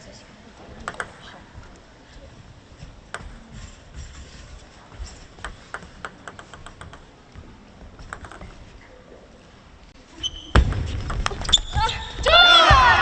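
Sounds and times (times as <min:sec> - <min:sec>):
table tennis ball bouncing: 0:05.4 - 0:07.1.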